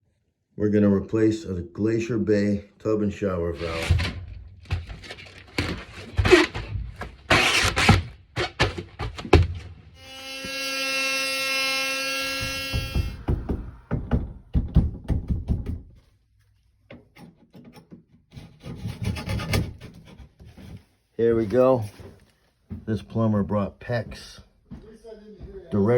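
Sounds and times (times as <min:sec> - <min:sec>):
power tool motor running: 0:10.0 - 0:13.9
knocks and taps on a wall: 0:12.4 - 0:16.0.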